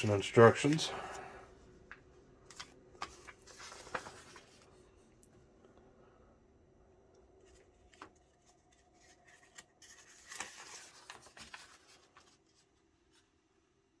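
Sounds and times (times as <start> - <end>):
paper sheet rustling: 1.9 - 5.0, 7.4 - 13.4.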